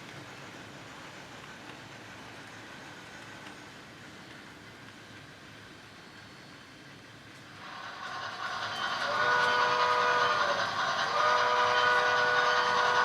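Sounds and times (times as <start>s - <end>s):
model locomotive running noise: 0.0s - 13.0s
steam locomotive whistle: 7.6s - 13.0s.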